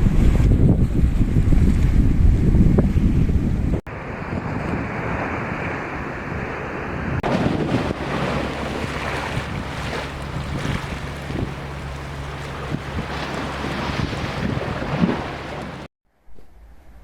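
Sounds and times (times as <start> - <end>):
wind buffeting microphone: 0.0 - 15.9
waves washing against shore: 3.9 - 15.9
steady low hum: 6.5 - 17.0.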